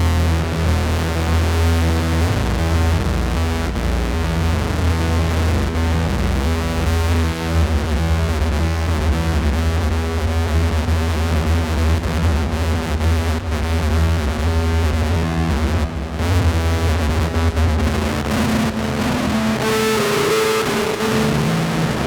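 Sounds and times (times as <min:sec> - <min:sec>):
noisy synth drone: 0:17.2 - 0:22.0.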